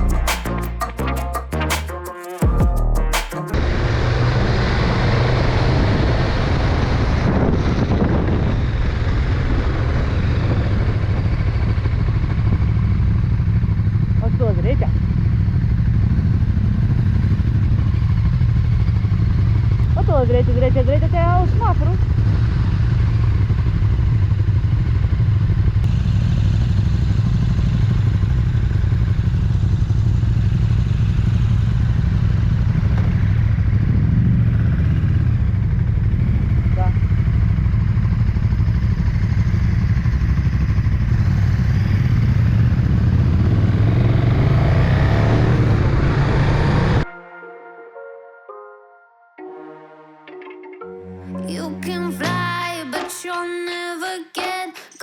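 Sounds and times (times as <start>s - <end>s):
motorcycle engine running: 3.5s - 47.0s
wind rushing over microphone: 3.6s - 12.8s.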